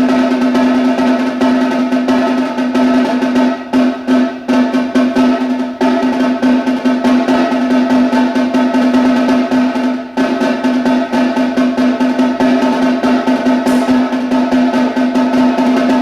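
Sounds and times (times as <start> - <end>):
snare drum rolls: 0.0 - 16.0.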